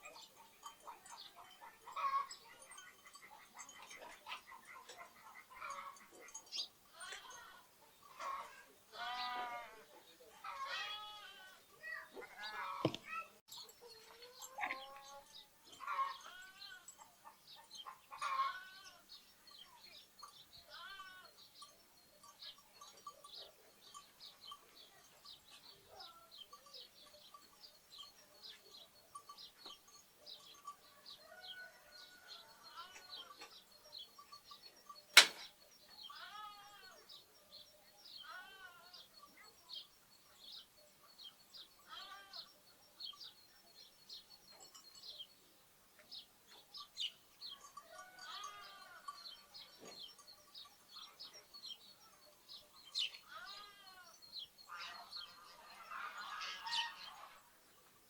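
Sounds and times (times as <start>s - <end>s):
sparrows chirping: 0.0s - 58.0s
lambs bleating: 8.2s - 9.8s, 10.4s - 11.6s, 36.1s - 37.0s, 41.9s - 42.5s, 53.3s - 54.1s
sharp knock: 35.2s - 35.4s.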